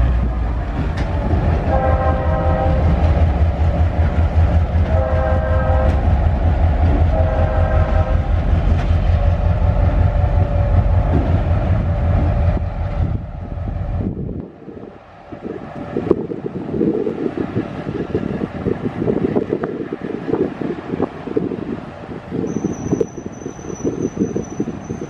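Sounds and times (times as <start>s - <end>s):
rumble of passing train: 0.0s - 25.0s
train horn blasts: 1.5s - 3.1s, 4.8s - 6.2s, 6.9s - 8.4s.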